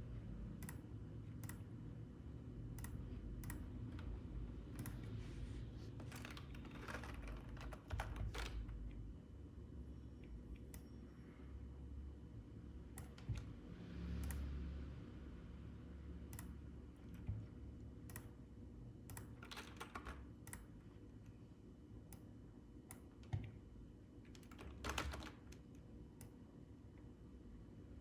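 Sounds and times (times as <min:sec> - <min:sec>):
faint low hum: 0:00.0 - 0:28.0
computer keys and mouse clicking: 0:00.6 - 0:01.7, 0:02.7 - 0:05.2, 0:06.0 - 0:08.7, 0:12.9 - 0:13.6, 0:14.2 - 0:14.5, 0:16.3 - 0:18.4, 0:19.0 - 0:20.8, 0:22.1 - 0:23.6, 0:24.3 - 0:26.4.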